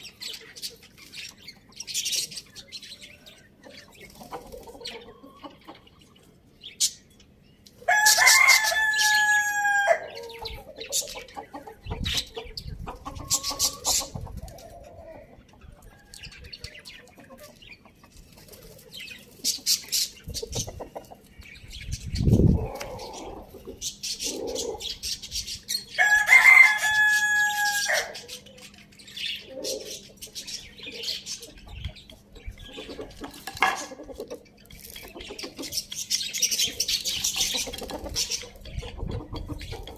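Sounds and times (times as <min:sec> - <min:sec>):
small birds chirping: 0:00.0 - 0:09.3, 0:10.0 - 0:26.7, 0:28.1 - 0:39.9
chickens clucking: 0:00.0 - 0:39.9
rooster crowing: 0:07.9 - 0:10.2, 0:26.0 - 0:28.2.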